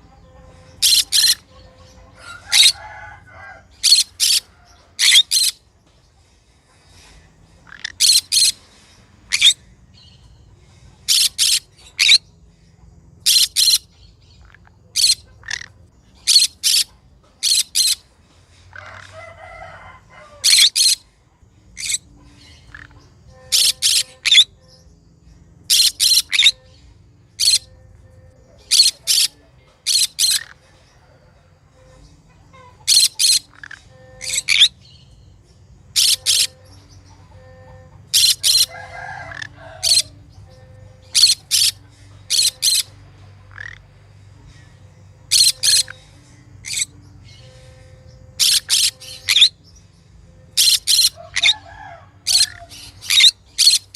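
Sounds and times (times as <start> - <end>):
parrot shrill screeching calls: 0.7 - 1.5, 2.2 - 5.6, 7.7 - 8.6, 9.3 - 9.6, 11.1 - 12.2, 13.2 - 18.0, 18.7 - 21.0, 23.5 - 24.5, 25.7 - 26.6, 27.4 - 27.7, 28.6 - 29.3, 29.9 - 30.6, 32.6 - 34.8, 35.9 - 36.6, 38.1 - 42.9, 43.5 - 43.8, 45.3 - 46.0, 46.6 - 47.5, 48.4 - 49.6, 50.6 - 53.9.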